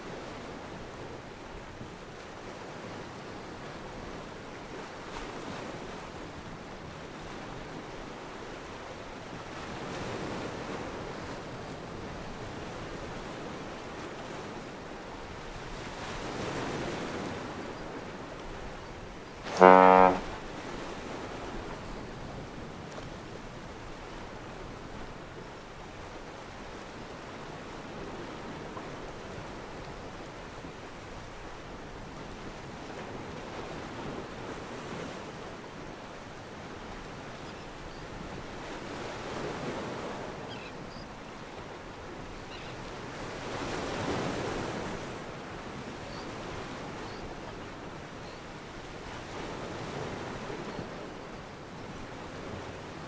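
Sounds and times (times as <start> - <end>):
wind: 0.0 - 8.3, 19.4 - 20.4, 28.5 - 53.0.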